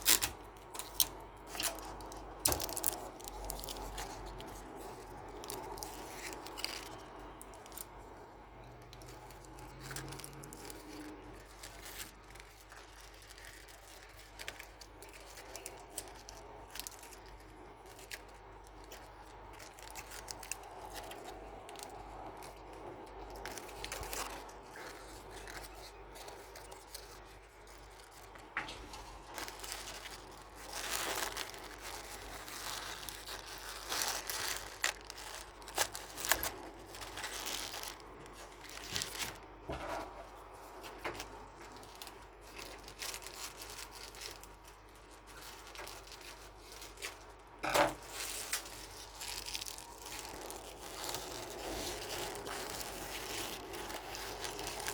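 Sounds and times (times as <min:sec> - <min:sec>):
paper rustling and crinkling: 0:00.0 - 0:54.9.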